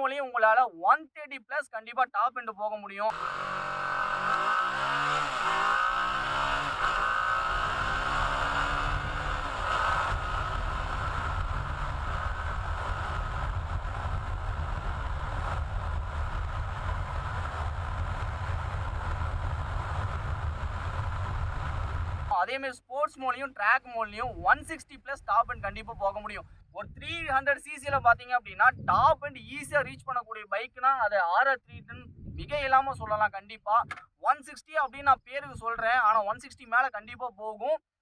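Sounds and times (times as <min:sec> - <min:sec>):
motorcycle engine: 0:03.1 - 0:22.3
wind noise on microphone: 0:06.3 - 0:22.3, 0:24.2 - 0:30.2, 0:31.6 - 0:34.0, 0:35.0 - 0:35.9.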